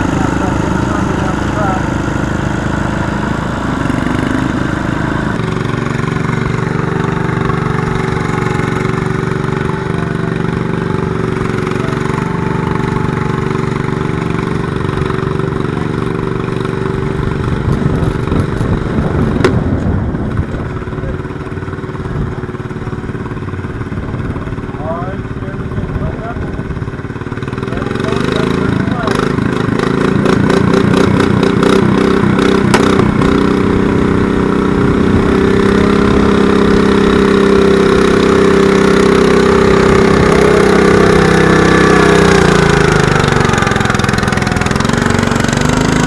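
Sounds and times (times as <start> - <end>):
garden tractor engine running: 0.0 - 46.0
sharp crack: 31.7 - 33.5.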